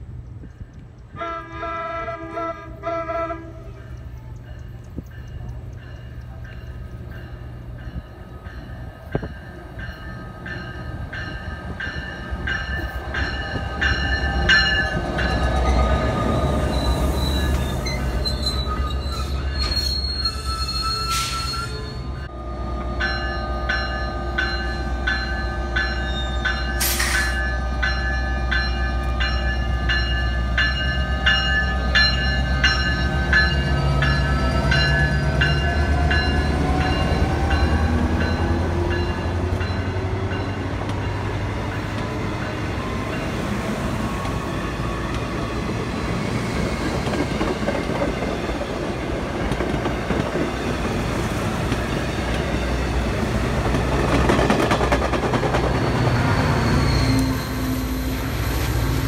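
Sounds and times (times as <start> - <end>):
train horn blast: 1.1 - 4.0, 21.0 - 29.5
locomotive bell ringing: 3.6 - 43.9.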